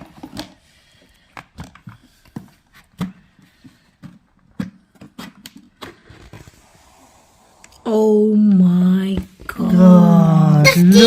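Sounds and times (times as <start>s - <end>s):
plastic parts clicking and knocking: 0.0s - 6.3s.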